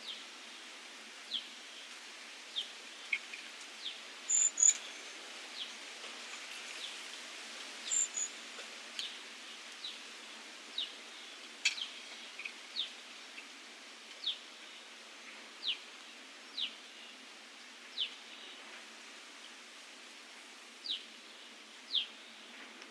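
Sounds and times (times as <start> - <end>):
steady outdoor hiss: 0.0 - 22.9
bird chirping: 2.6 - 5.0, 7.8 - 8.4.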